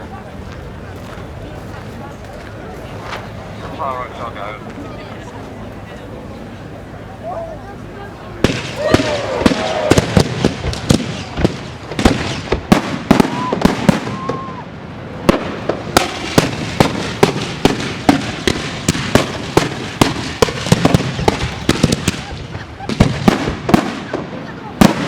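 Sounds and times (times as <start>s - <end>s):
fireworks banging and cracking: 8.4s - 25.0s.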